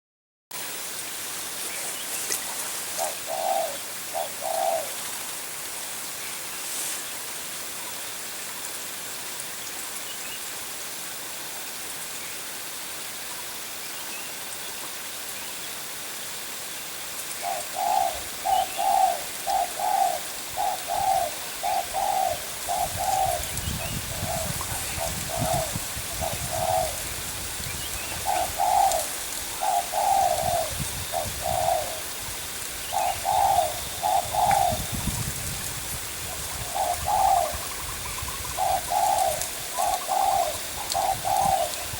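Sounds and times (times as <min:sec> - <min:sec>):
steady hiss: 0:00.6 - 0:41.9
dove cooing: 0:02.5 - 0:05.1, 0:17.4 - 0:27.3, 0:28.1 - 0:32.2, 0:32.9 - 0:35.0, 0:36.2 - 0:41.9.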